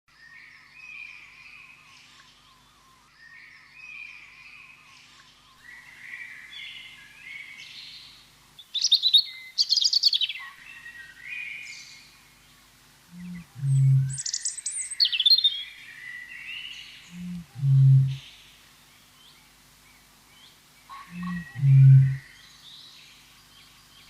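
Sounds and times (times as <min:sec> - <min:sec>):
birds singing: 0:00.1 - 0:24.0
rapid rattling bird trills: 0:13.1 - 0:15.5, 0:20.9 - 0:22.3.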